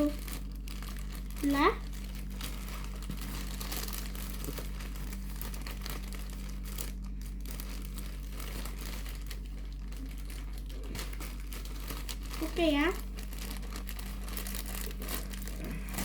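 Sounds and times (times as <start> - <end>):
packaging crinkling: 0.0 - 16.0
steady low hum: 0.0 - 16.0.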